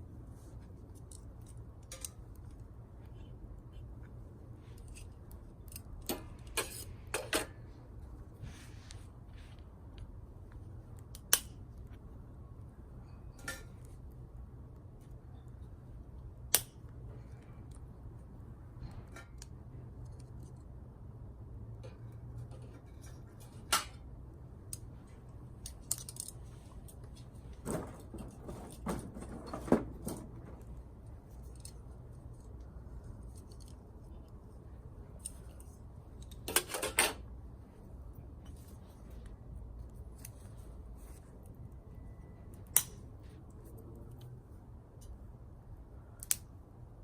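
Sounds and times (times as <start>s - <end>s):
clicks of small objects handled: 0.6s - 7.5s, 24.6s - 28.8s, 29.5s - 34.5s.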